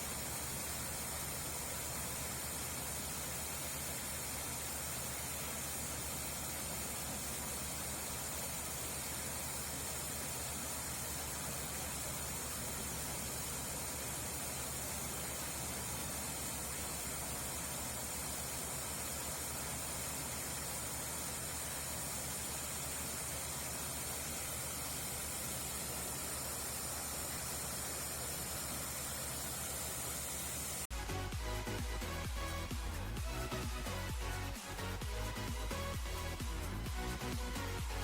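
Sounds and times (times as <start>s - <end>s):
combine harvester running: 0.0s - 38.0s
music: 30.9s - 38.0s.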